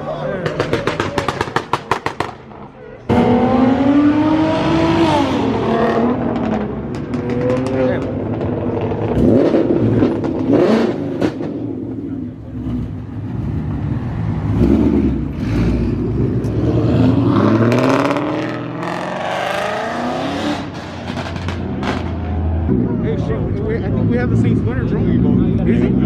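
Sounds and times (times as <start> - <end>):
car engines revving: 0.0 - 26.0.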